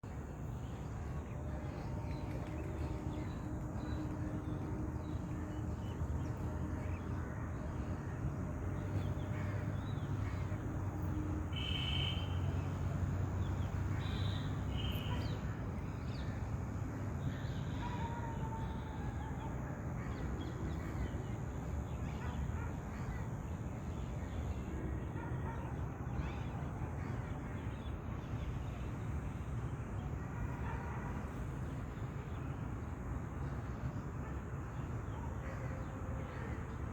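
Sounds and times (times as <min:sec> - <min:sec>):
short bird calls: 0:11.5 - 0:12.5.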